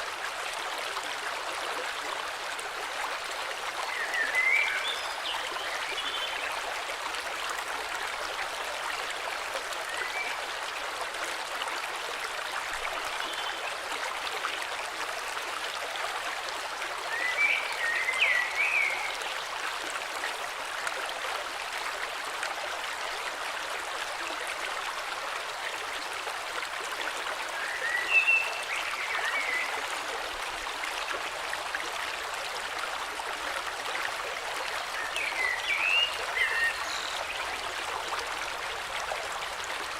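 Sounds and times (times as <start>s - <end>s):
river flowing: 0.0s - 39.9s.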